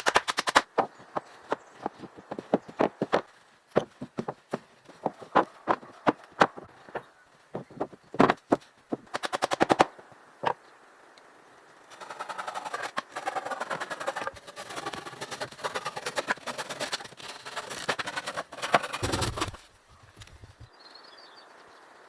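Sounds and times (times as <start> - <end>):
rapid sharp knocks: 8.2 - 9.9, 12.0 - 19.6
dense rattling clatter: 12.0 - 19.6.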